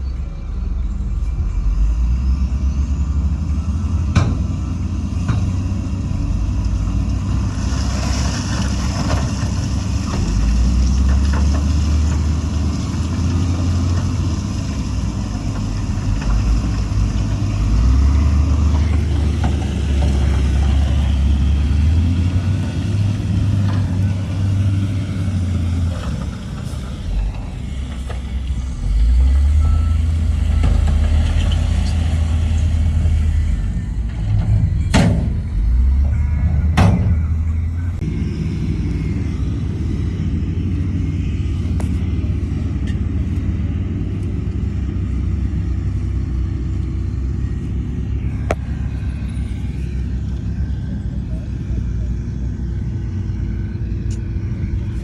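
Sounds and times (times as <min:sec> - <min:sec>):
heavy diesel engine rumbling: 0:00.0 - 0:55.0
metallic clanks: 0:34.0 - 0:37.7.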